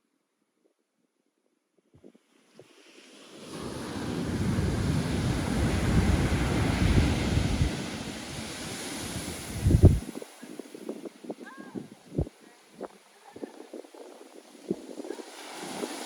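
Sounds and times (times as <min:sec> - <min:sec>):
ocean wave rushing in: 0:02.6 - 0:16.0
wind buffeting microphone: 0:03.6 - 0:16.0.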